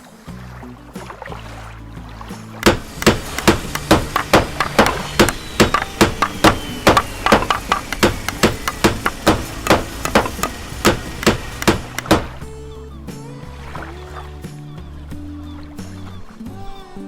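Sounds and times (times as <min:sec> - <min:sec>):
fast hammer-like knocks: 0:02.6 - 0:12.4.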